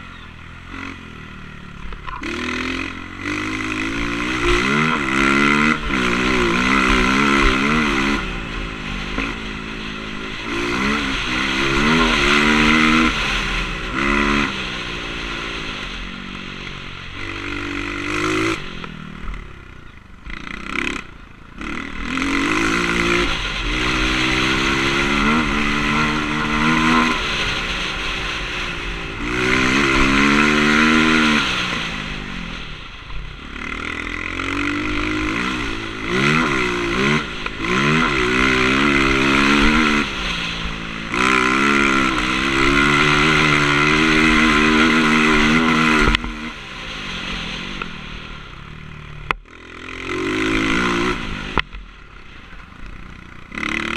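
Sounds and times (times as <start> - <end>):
motocross bike engine revving: 0.0 - 53.9.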